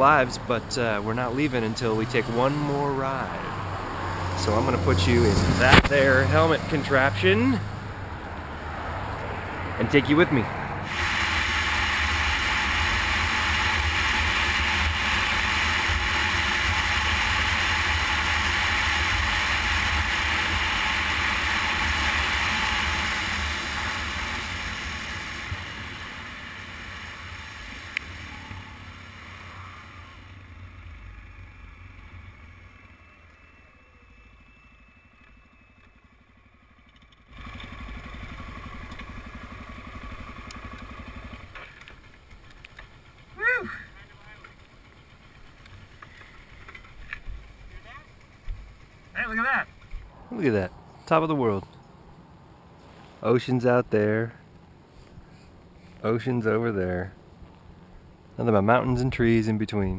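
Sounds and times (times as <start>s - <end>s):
rushing wind: 0.0s - 28.9s
motorcycle engine: 0.0s - 59.9s.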